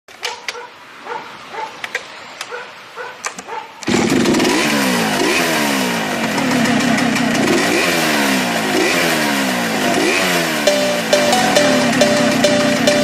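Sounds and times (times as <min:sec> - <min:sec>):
chainsaw revving: 0:03.8 - 0:10.8.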